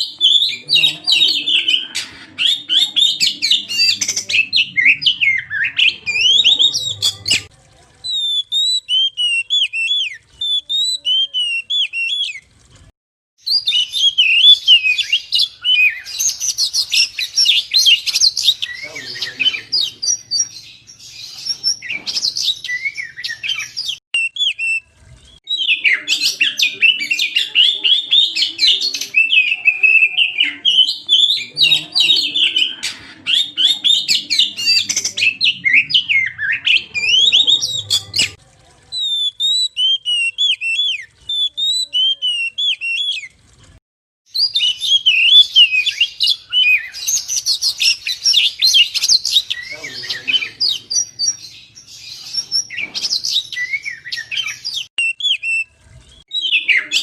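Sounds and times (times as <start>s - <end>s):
bird singing whistles and chirps: 8.1s - 12.4s, 13.4s - 24.8s, 39.0s - 43.3s, 44.3s - 55.7s, 56.3s - 57.0s.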